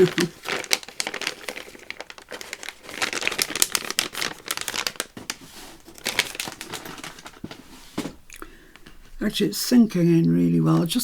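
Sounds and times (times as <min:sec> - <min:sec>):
paper rustling and crinkling: 0:00.0 - 0:08.2.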